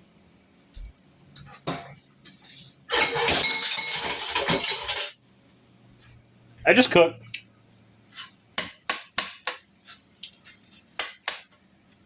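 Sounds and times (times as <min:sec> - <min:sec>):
pan clatter: 0:02.9 - 0:05.2
rice scraping and sizzling in pan: 0:09.7 - 0:11.6.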